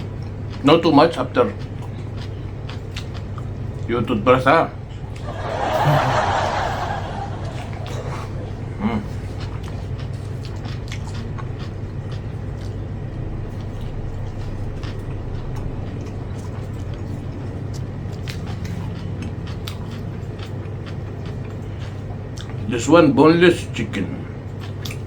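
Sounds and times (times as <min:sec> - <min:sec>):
eating clicks and smacks: 0:00.0 - 0:03.9, 0:07.4 - 0:22.7, 0:24.4 - 0:25.0
steady low hum: 0:00.0 - 0:25.0.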